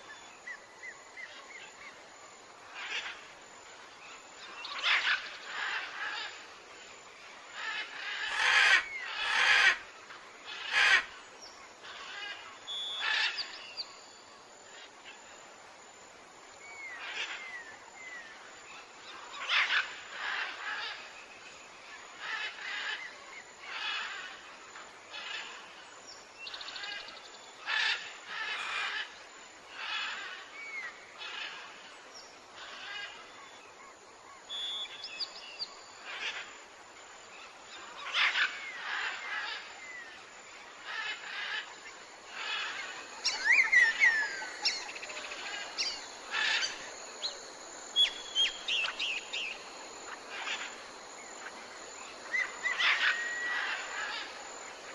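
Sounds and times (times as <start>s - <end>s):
wild birds calling: 7.6s - 11.2s, 32.6s - 36.6s, 37.4s - 54.9s.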